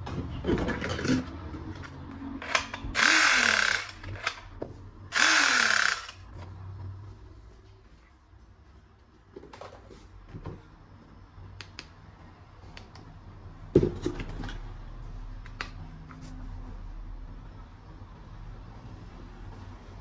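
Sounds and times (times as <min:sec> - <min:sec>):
plastic toy parts clicking: 0:05.2 - 0:06.2.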